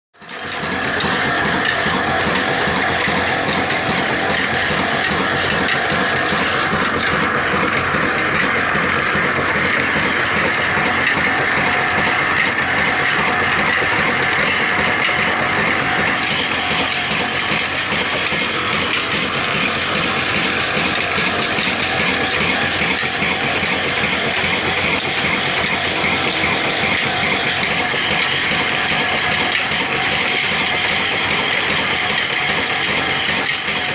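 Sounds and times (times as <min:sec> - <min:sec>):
metallic clatter: 0:00.3 - 0:33.9
diesel engine running: 0:01.3 - 0:33.6.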